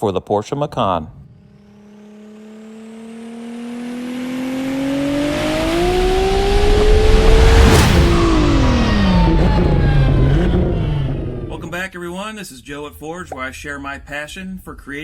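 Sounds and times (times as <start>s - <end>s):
car engine accelerating: 1.2s - 11.7s.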